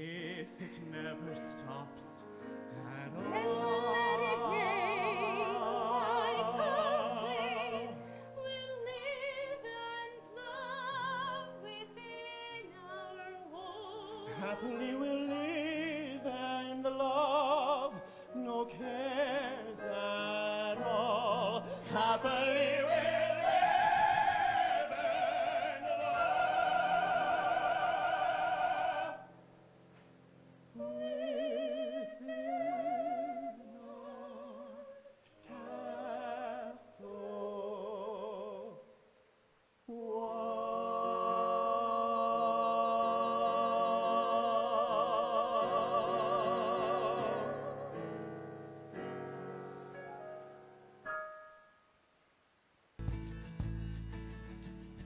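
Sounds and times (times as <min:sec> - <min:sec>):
two singers singing operatic duet: 0:00.0 - 0:29.3, 0:30.7 - 0:39.0, 0:39.9 - 0:48.7.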